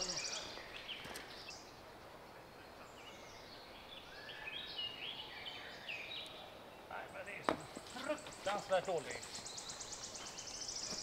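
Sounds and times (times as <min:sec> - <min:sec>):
songbirds whistling: 0:00.0 - 0:01.8, 0:08.0 - 0:11.0.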